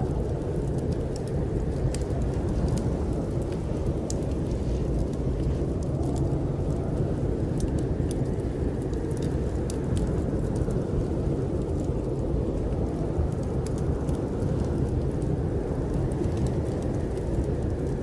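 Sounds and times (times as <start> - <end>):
snowstorm wind rumbling: 0.0 - 18.0
wood fire crackling: 0.0 - 18.0.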